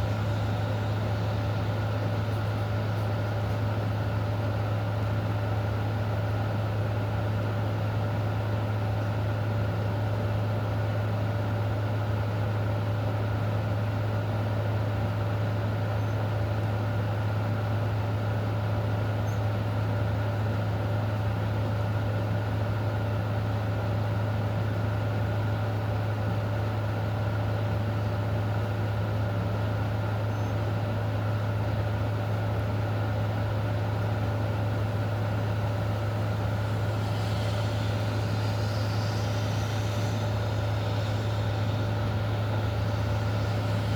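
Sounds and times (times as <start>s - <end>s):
low hum: 34.3s - 43.9s
even hiss: 35.7s - 43.9s.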